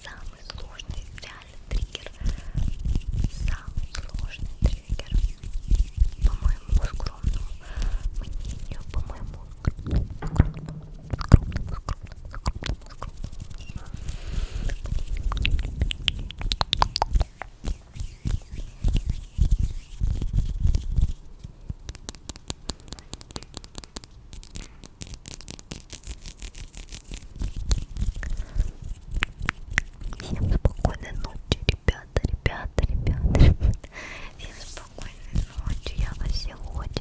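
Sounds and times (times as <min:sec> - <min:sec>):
soft low thumps: 0:02.5 - 0:12.9
wet crackly clicks: 0:21.7 - 0:27.0.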